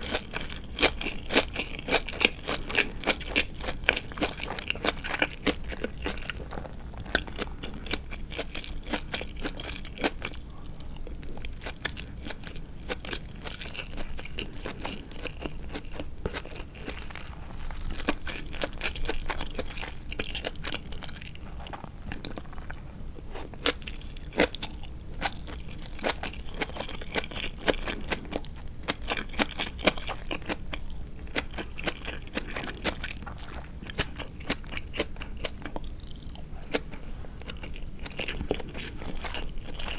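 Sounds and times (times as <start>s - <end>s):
crunchy chewing of fried chicken: 0.0s - 39.9s.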